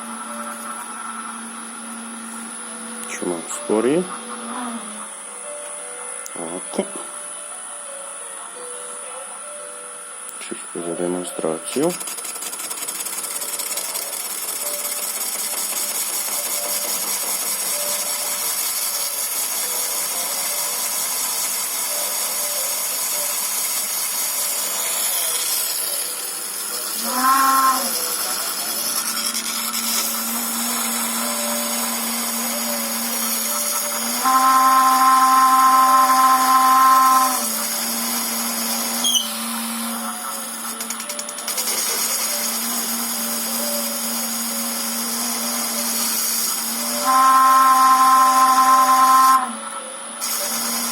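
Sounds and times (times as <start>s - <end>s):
lathe motor high-pitched whine: 0.0s - 50.9s
loud pitched tone: 27.0s - 29.4s, 30.1s - 37.4s, 39.0s - 41.2s, 45.6s - 50.2s.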